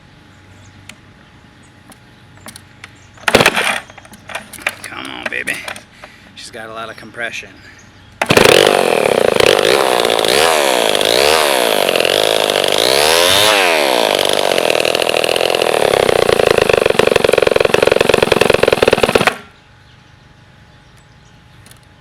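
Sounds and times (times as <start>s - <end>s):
chainsaw running and revving: 8.2s - 19.4s.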